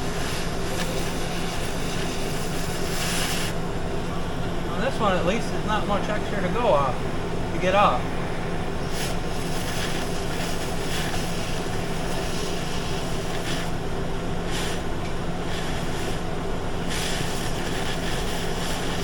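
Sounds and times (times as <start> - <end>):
cutting torch hissing: 0.0 - 3.7, 8.5 - 19.0.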